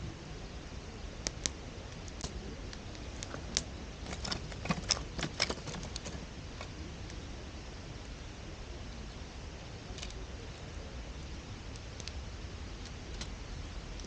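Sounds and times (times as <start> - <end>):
campfire crackling and popping: 1.0 - 7.3, 9.8 - 14.0.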